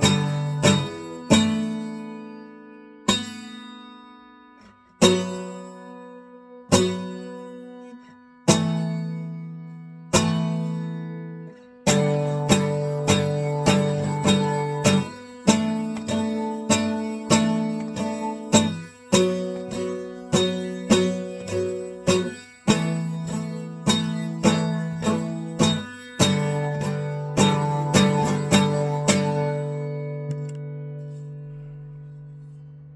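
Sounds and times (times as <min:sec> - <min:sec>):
acoustic guitar strumming chords: 0:00.0 - 0:32.9.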